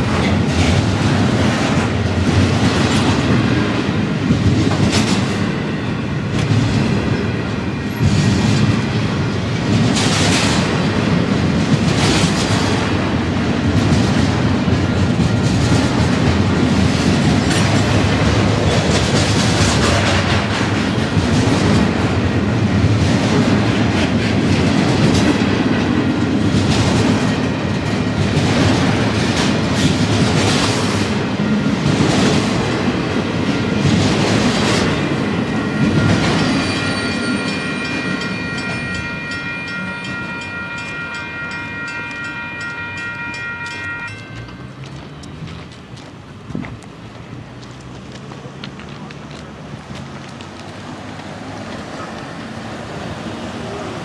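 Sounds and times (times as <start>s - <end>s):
grade-crossing bell ringing: 0.0s - 10.0s, 31.0s - 45.7s
freight train rolling past: 0.0s - 54.0s
wheels clicking over rail joints: 44.1s - 54.0s.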